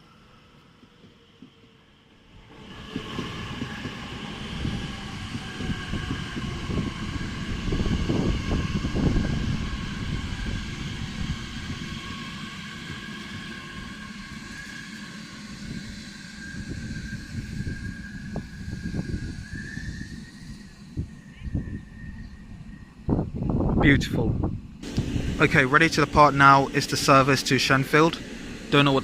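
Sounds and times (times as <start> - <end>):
train wheels rumbling on rails: 0.0 - 29.0
high electric whine: 24.8 - 29.0.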